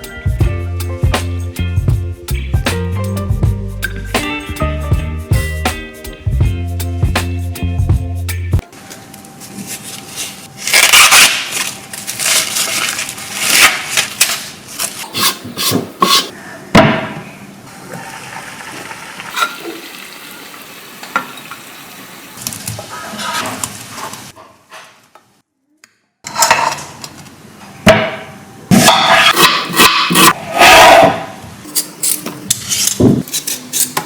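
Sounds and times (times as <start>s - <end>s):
background music: 0.0s - 8.6s
kitchen clatter of pots and dishes: 19.3s - 19.9s.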